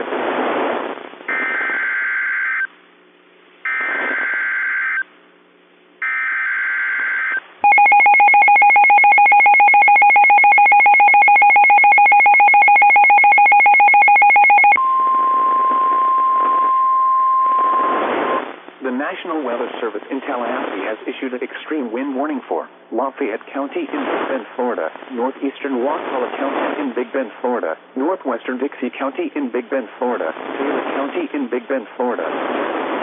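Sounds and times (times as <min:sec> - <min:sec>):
warbling data tone bursts: 0:03.7 - 0:05.1
two-tone attention signal: 0:07.6 - 0:18.4.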